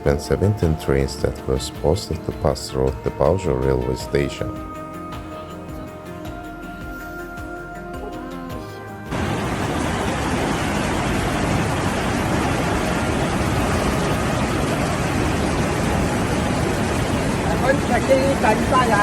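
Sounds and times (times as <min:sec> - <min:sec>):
background music: 0:00.0 - 0:19.0
loud rushing water: 0:09.1 - 0:19.0.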